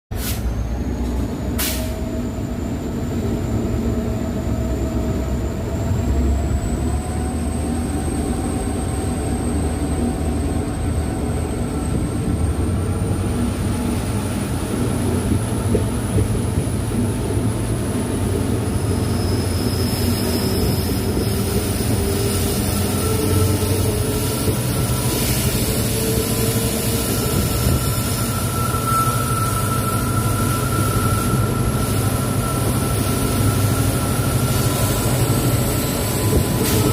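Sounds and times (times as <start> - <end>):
diesel locomotive engine rumble: 0.1 - 36.9.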